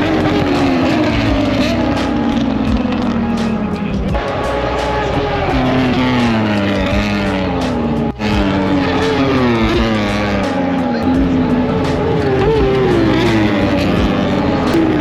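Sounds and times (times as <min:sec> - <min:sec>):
racing motorcycle engines at high revs: 0:00.0 - 0:15.0.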